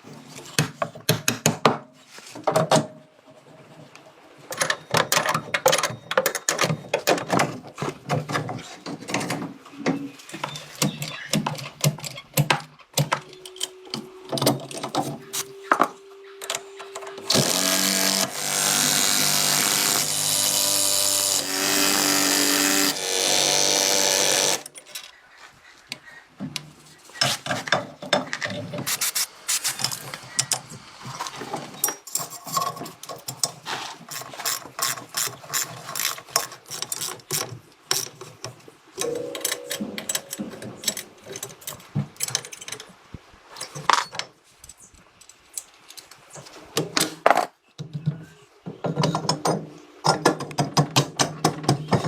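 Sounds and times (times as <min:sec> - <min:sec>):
power tool running: 0:17.2 - 0:24.7.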